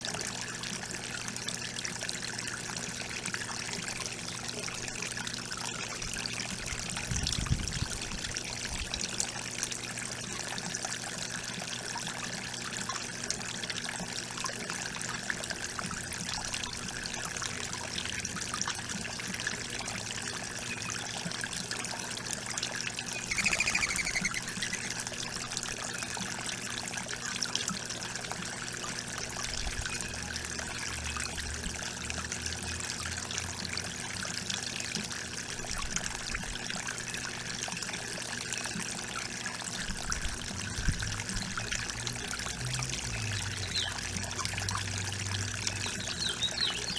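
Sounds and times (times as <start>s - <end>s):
water trickling: 0.0s - 46.9s
high twittering sound: 23.2s - 25.1s.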